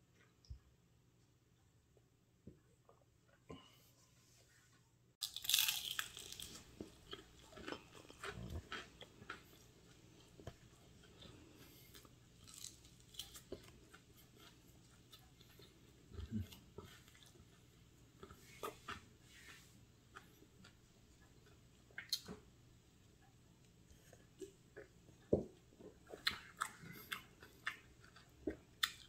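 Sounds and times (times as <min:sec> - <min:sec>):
crunching fried chicken: 0:05.2 - 0:17.4.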